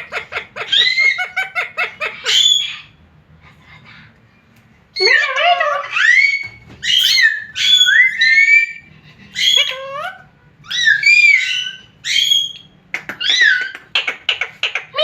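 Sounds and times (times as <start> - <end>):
parrot whistling calls: 6.0 - 8.8.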